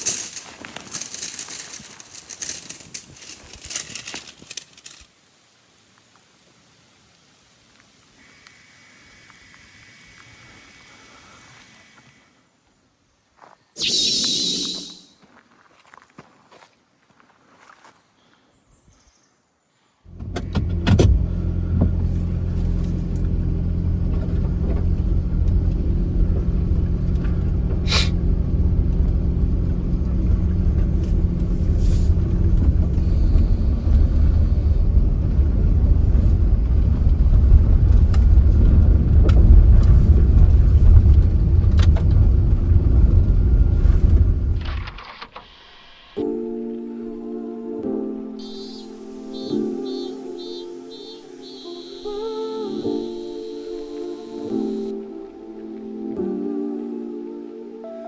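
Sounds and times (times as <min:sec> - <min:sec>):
car engine rumble: 0:20.1 - 0:45.3.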